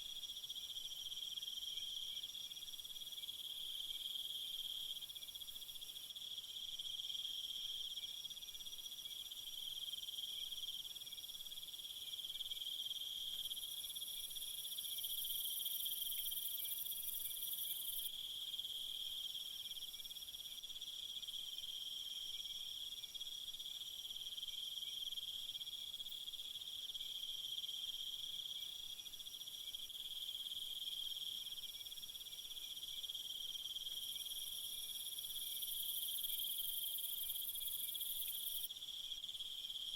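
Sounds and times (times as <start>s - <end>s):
high hissy insect layer: 0.1s - 39.9s
insect chorus trilling: 12.2s - 19.1s, 29.6s - 39.9s.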